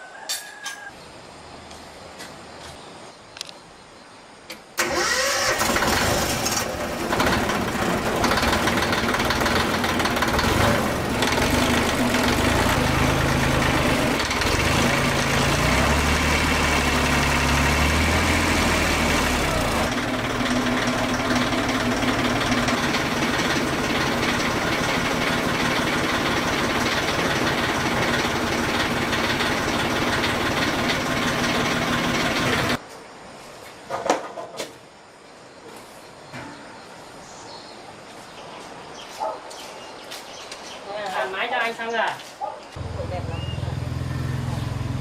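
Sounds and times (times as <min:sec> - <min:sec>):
heavy truck engine running: 0:04.8 - 0:32.8, 0:42.8 - 0:45.0.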